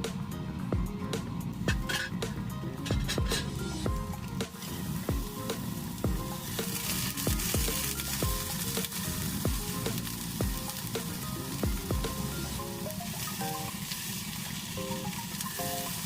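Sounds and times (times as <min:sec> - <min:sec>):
music with steady beat: 0:00.0 - 0:13.9
food sizzling in frying pan: 0:03.3 - 0:16.0.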